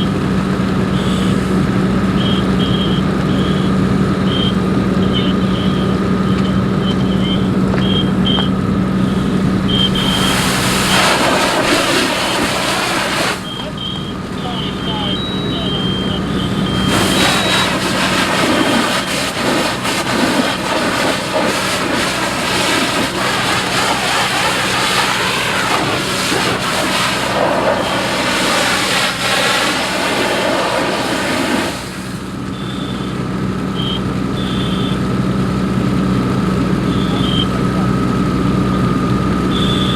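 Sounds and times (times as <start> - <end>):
fire engine humming: 0.0 - 39.9
loud rushing noise: 7.5 - 13.6, 16.2 - 32.4
short high beeps: 13.4 - 17.7, 36.8 - 37.6.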